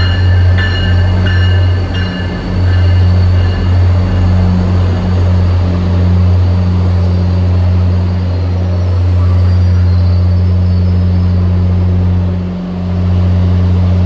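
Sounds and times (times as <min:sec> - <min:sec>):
diesel locomotive engine drone: 0:00.0 - 0:14.0
train wheels rumbling: 0:00.0 - 0:14.0.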